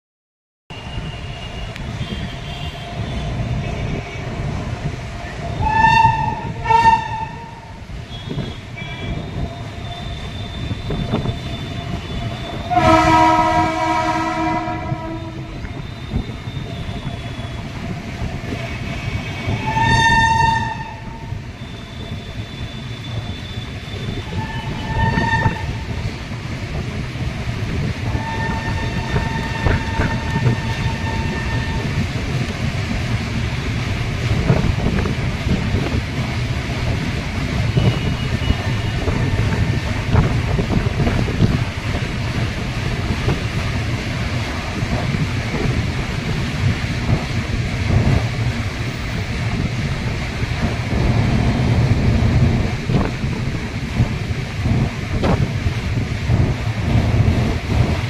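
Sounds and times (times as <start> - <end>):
train wheels rumbling on bridge: 0.7 - 58.0
train horn blasts: 5.6 - 9.3, 9.9 - 16.3, 18.7 - 21.3, 23.4 - 26.0, 28.1 - 32.0.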